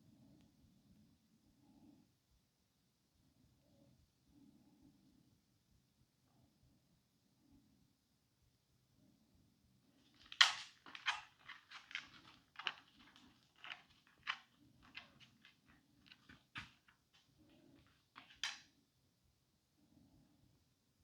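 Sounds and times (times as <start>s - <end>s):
dog chewing and gnawing: 10.2s - 17.0s.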